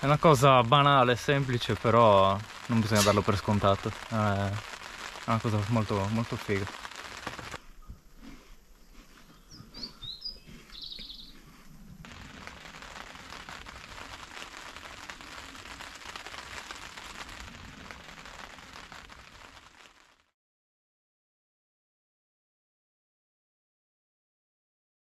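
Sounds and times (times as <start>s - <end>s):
rain pattering: 0.0s - 7.6s, 12.0s - 20.3s
bird chirps: 8.7s - 11.5s.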